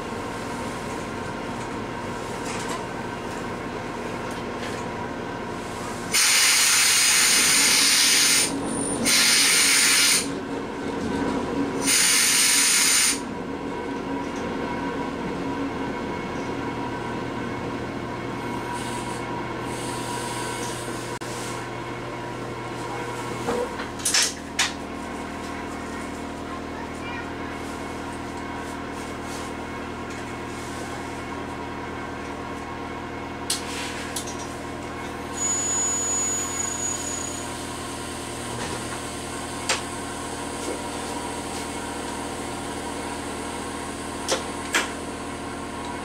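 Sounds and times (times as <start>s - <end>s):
train cab noise: 0.1s - 21.2s.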